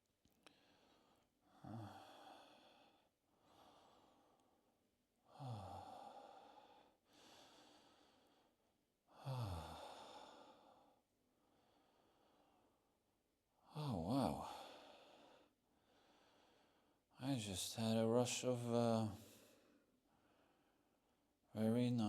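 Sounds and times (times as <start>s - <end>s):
person breathing deeply and sighing: 0.4s - 12.8s, 13.7s - 17.0s.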